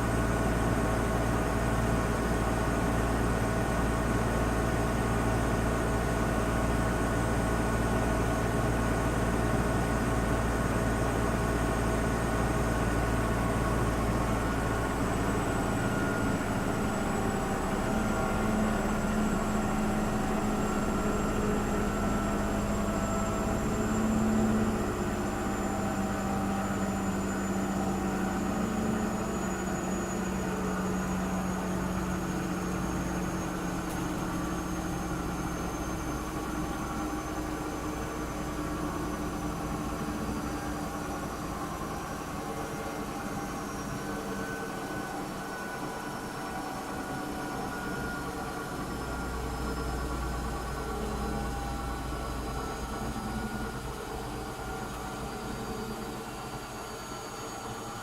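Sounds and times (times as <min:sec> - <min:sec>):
faint high whine: 0:14.3 - 0:58.0.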